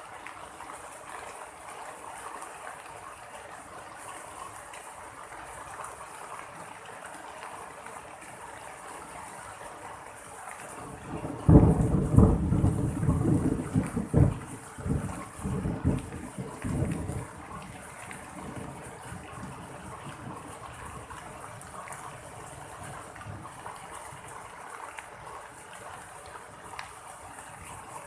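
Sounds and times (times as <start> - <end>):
steady rain falling: 0.0 - 28.0
thunder clap rumbling: 11.0 - 17.4.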